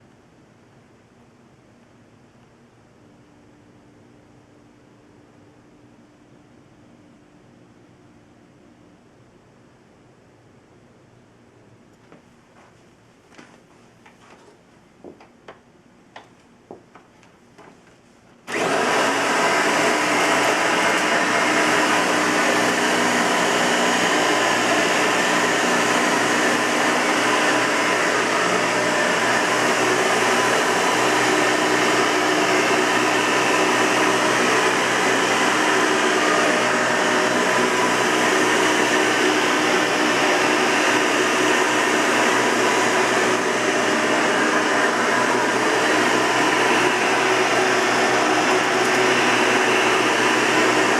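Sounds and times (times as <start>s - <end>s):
vacuum cleaner motor whirring: 18.5s - 50.9s.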